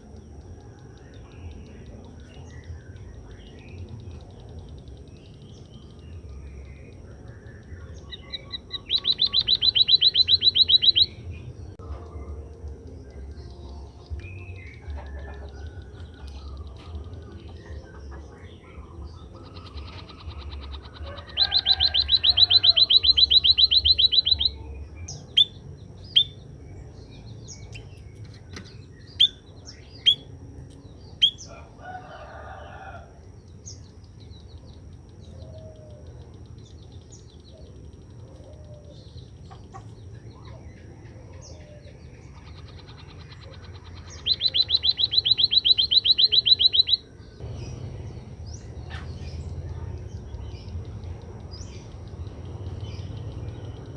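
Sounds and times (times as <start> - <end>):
bird chirps: 0.0 - 53.9
bird trilling: 1.2 - 11.5, 14.3 - 26.4, 28.5 - 30.4, 31.1 - 33.0, 34.8 - 49.5.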